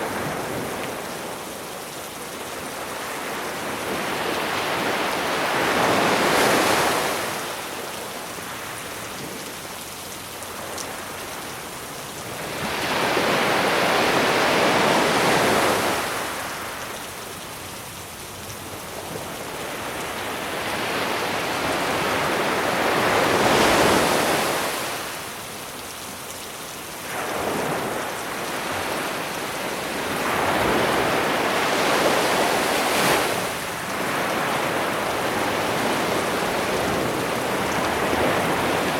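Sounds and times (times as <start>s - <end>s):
sea waves breaking on beach: 0.0s - 38.9s.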